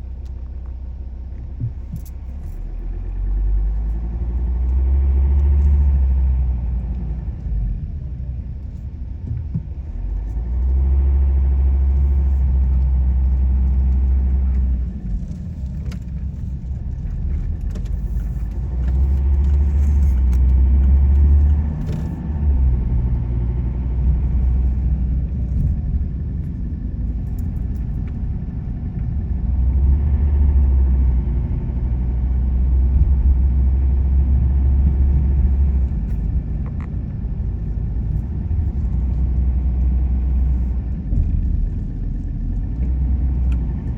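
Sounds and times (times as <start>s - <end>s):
light clicks and rattles: 0.0s - 6.0s, 11.8s - 22.6s, 23.9s - 29.1s
car road and engine rumble: 0.0s - 43.9s.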